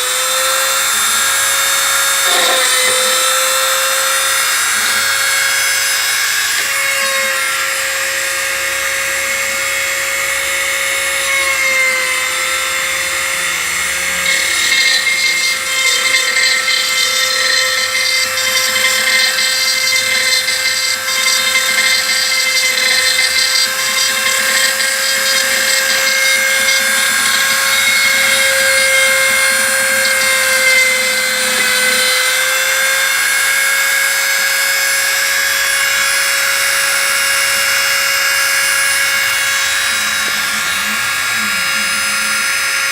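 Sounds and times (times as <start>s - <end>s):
end mill cutting metal: 0.0s - 42.9s
router spindle whining: 0.0s - 42.9s.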